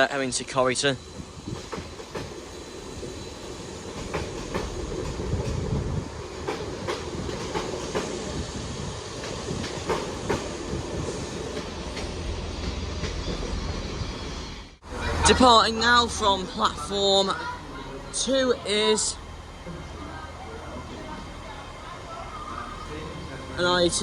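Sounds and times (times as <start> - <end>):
train running rumble: 0.0 - 24.0
train wheels clicking over rail joints: 1.1 - 13.6.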